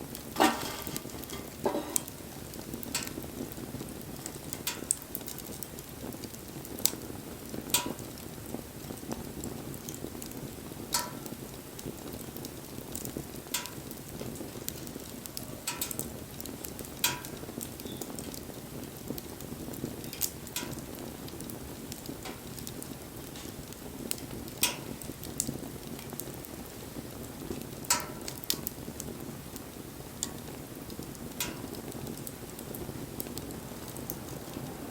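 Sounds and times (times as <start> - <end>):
fire crackles and pops: 0.0 - 34.9
rush of bonfire flame: 0.0 - 34.9.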